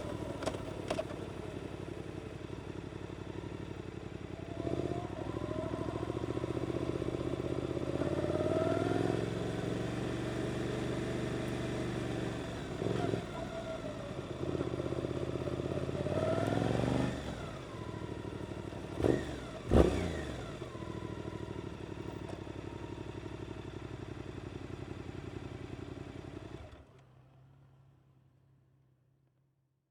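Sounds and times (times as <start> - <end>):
motorcycle engine revving: 3.3 - 23.4.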